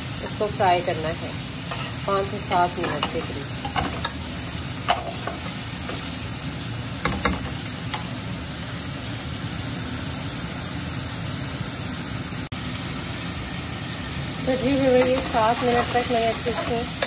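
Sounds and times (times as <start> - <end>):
chicken sizzling in oil: 0.0 - 17.0
spatula scraping a pan: 1.6 - 4.2, 14.9 - 17.0.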